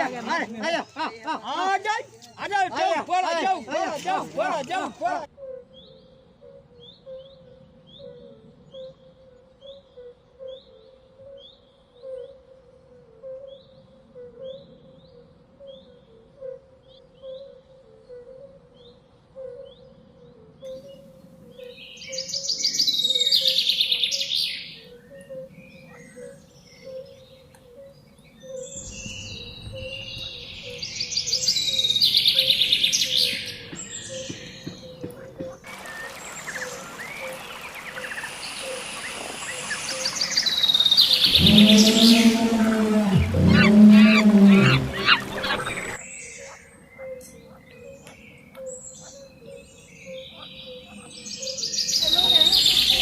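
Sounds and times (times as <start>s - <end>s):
birds chirping: 0.0s - 6.2s, 20.7s - 53.0s
loud rapid bird trill: 35.8s - 46.6s.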